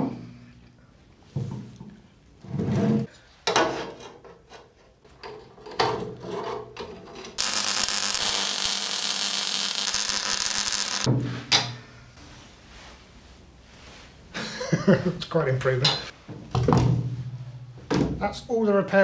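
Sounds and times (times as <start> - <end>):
power tool running: 7.4 - 11.1.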